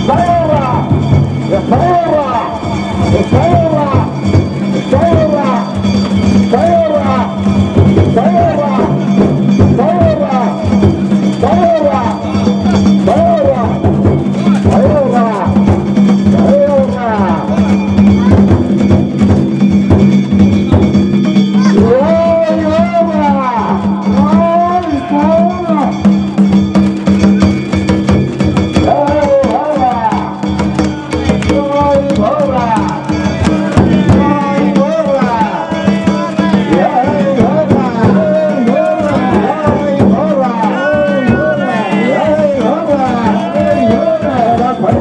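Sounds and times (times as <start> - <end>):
taiko drum: 0.0 - 45.0
voices calling and chanting: 0.0 - 45.0.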